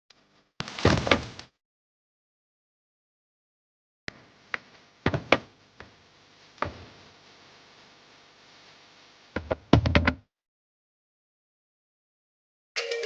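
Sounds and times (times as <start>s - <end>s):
sharp knocks and thumps: 5.0s - 5.5s.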